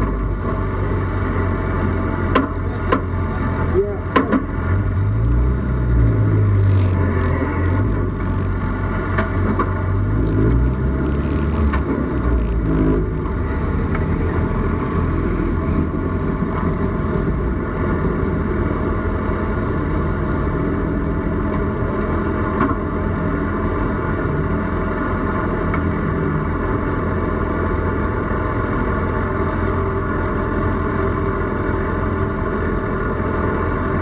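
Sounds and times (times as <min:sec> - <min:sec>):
race car engine idling: 0:00.0 - 0:22.0.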